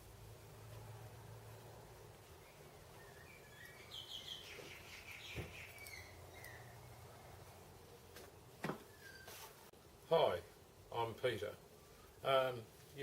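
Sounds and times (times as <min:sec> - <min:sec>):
faint bird chirping: 0:02.2 - 0:07.6, 0:08.8 - 0:09.6.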